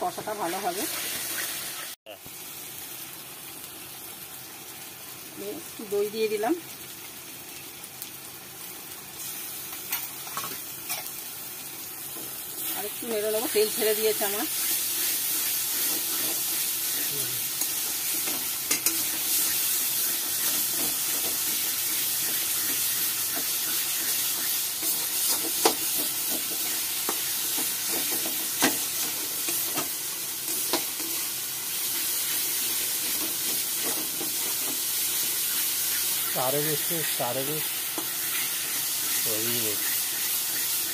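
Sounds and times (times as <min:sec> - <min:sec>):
masala sizzling in oil: 0:00.0 - 0:40.9
spatula stirring and scraping: 0:14.5 - 0:29.9.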